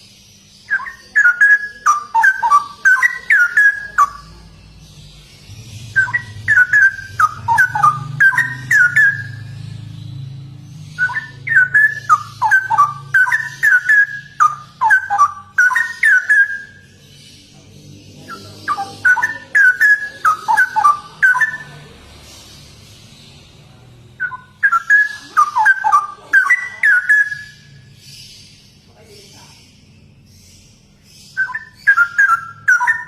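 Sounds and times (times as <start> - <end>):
bird singing whistled notes: 0.0 - 23.5, 24.2 - 28.9, 29.5 - 33.0.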